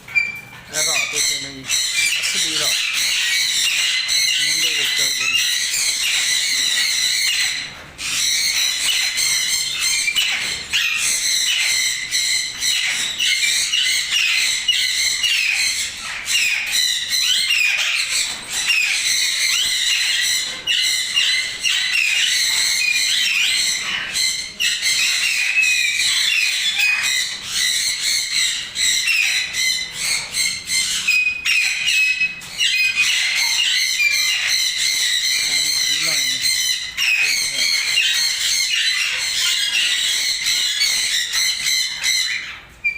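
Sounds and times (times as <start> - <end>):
parrots chattering and squawking: 0.0 - 42.9.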